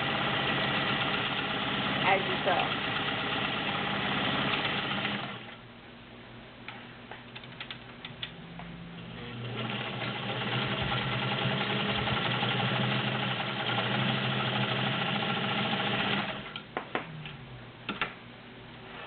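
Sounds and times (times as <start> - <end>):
sewing machine stitching: 0.0 - 5.5, 9.2 - 16.6.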